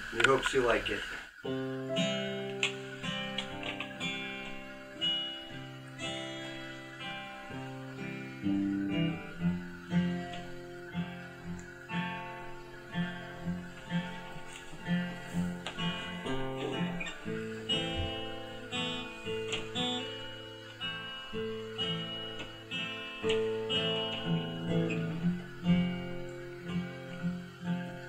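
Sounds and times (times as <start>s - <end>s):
acoustic guitar strumming: 1.4s - 28.0s.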